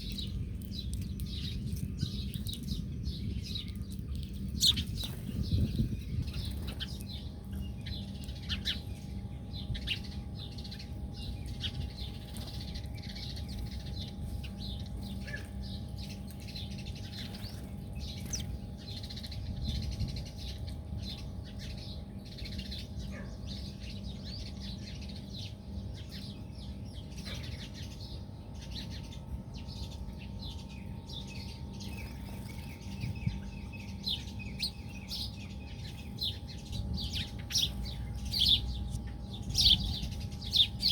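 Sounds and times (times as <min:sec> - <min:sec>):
small birds chirping and twittering: 0:00.0 - 0:40.9
steady low rumble: 0:00.0 - 0:40.9.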